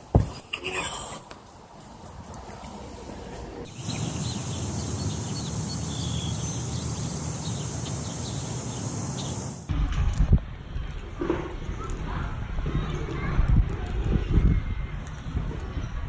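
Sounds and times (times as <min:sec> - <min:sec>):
bird chirps: 0:03.7 - 0:09.7
high-pitched insect drone: 0:03.7 - 0:09.7.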